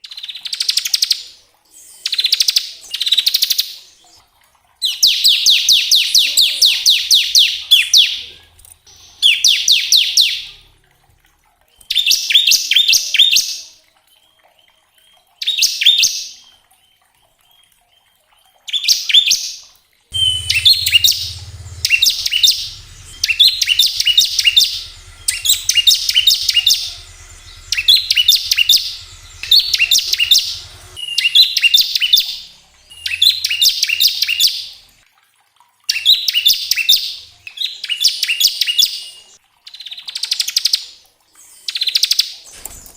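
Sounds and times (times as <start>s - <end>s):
bird singing rattling trill: 20.1s - 34.8s.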